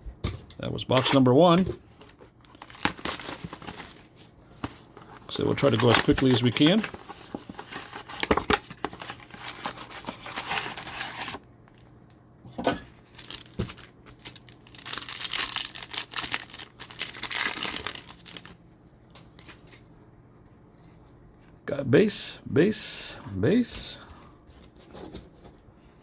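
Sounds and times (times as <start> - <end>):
plastic wrappers crinkling: 2.3 - 11.9, 13.0 - 18.6
card packaging being torn open: 2.4 - 4.1, 5.5 - 11.4, 13.1 - 18.6.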